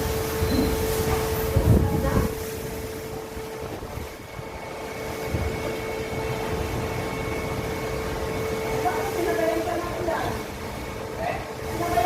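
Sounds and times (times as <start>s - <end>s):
machinery humming: 0.0s - 12.0s
thin high whine: 0.0s - 12.0s.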